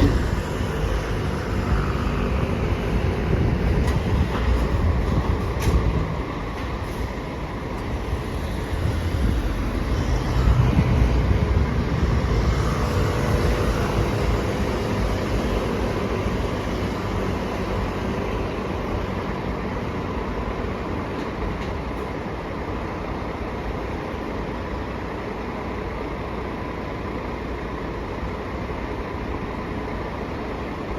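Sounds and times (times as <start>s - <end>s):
heavy vehicle passing: 0.0s - 18.6s.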